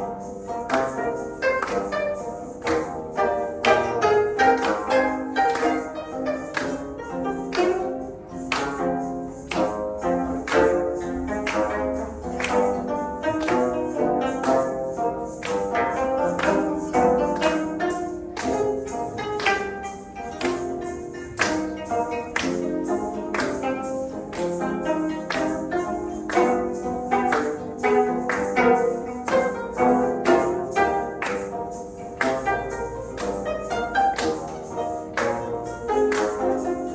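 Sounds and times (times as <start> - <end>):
instrumental ensemble music: 0.0 - 36.9
regular percussive beat: 0.0 - 36.9.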